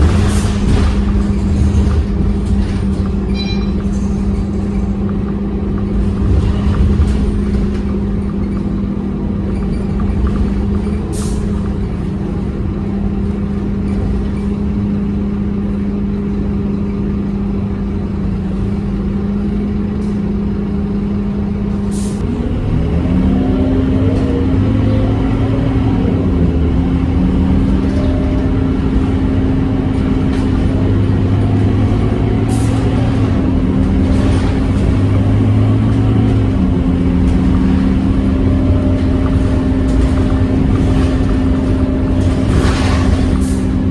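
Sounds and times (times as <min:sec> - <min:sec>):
bus diesel engine droning: 0:00.0 - 0:43.9.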